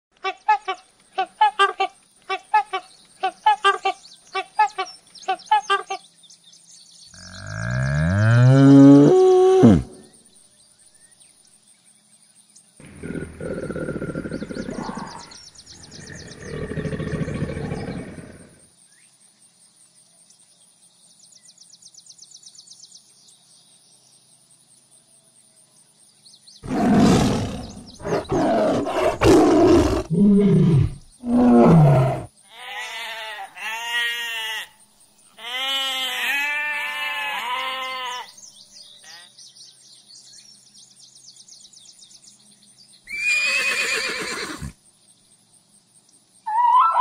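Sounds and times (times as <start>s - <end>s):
tiger roaring and growling: 7.2s - 10.0s, 12.8s - 18.6s, 26.6s - 32.3s
sheep bleating: 32.6s - 34.7s.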